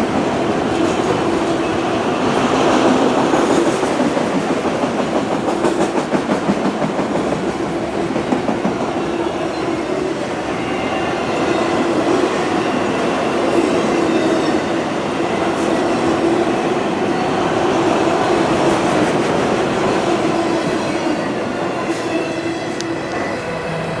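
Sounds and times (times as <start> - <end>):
clickety-clack over rail joints: 0.0 - 9.0.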